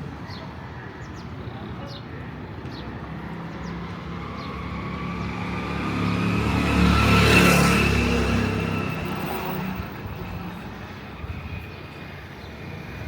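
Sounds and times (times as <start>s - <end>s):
vehicle engine passing by: 3.7s - 10.7s.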